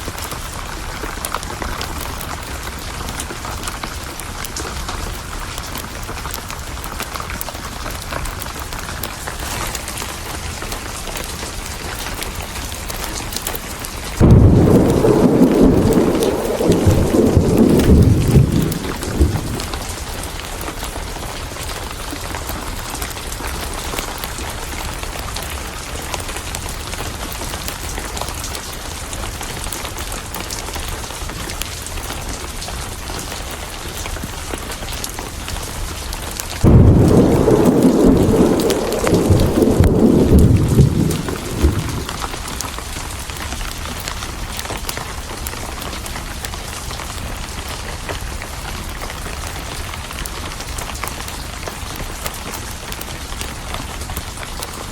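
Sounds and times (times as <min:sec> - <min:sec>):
steady rain: 0:00.0 - 0:54.9
thunder clap and rumble: 0:12.6 - 0:22.2, 0:36.4 - 0:44.2.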